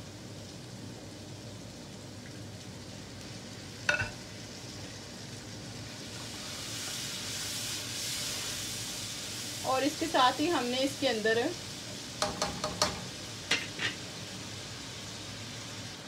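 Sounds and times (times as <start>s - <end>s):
masala frying in oil: 0.0s - 16.0s
spatula stirring a pan: 5.8s - 9.6s, 11.8s - 14.0s.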